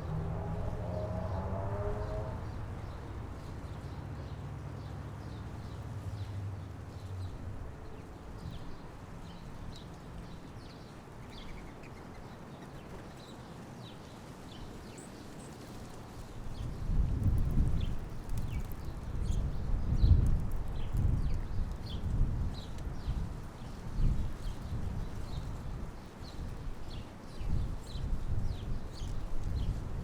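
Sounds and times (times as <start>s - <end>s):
low rumble: 0.0s - 4.7s
small birds chirping: 17.4s - 22.8s.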